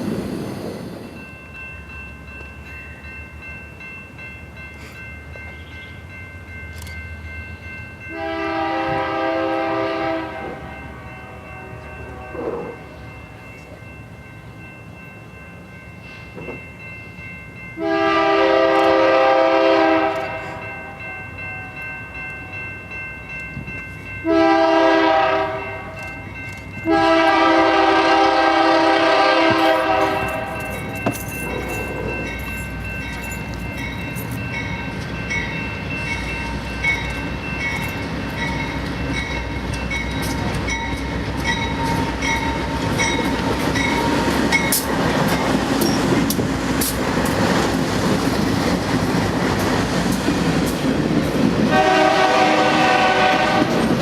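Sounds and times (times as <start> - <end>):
train rolling past: 0.0 - 54.0
train air horn blasts: 8.1 - 13.0, 17.8 - 21.0, 24.2 - 26.0, 26.8 - 30.7, 51.7 - 53.9.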